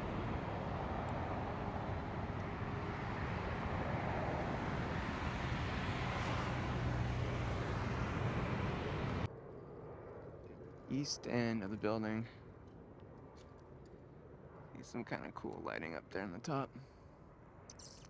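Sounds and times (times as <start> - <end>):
road traffic: 0.0 - 9.3.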